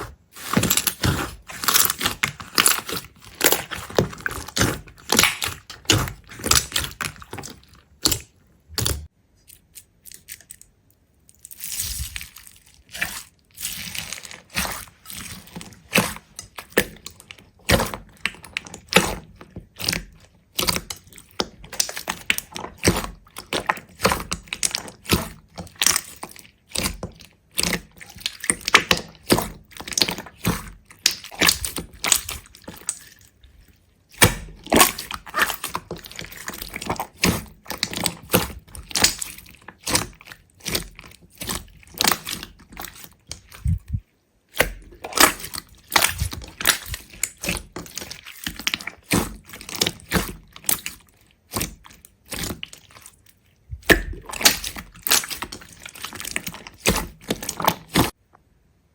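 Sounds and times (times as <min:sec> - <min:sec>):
crisp crackling and snapping: 0:00.4 - 0:10.7, 0:34.1 - 0:58.2.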